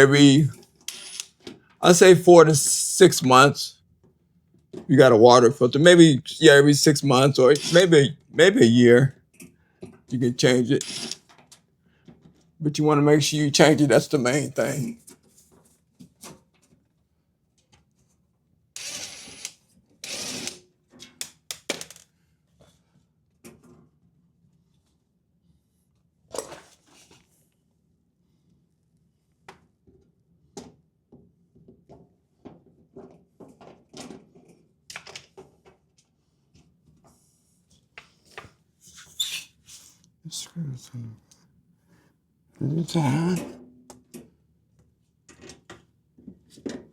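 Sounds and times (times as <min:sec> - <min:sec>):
power screwdriver driving screws: 0:00.9 - 0:01.4, 0:07.6 - 0:07.9, 0:10.8 - 0:11.3, 0:18.8 - 0:20.6.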